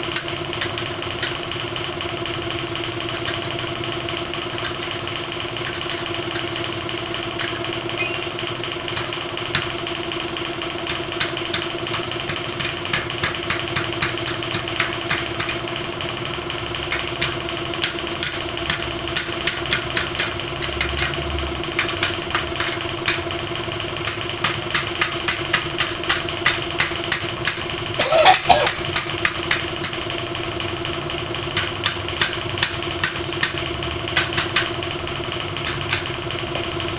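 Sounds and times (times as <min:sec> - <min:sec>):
sharp ticks: 0:10.8 - 0:15.8, 0:16.4 - 0:23.4.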